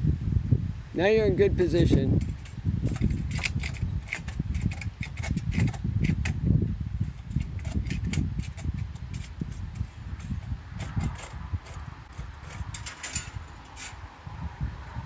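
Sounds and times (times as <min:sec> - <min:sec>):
handsaw rasping through wood: 0:02.2 - 0:06.4, 0:07.1 - 0:14.1.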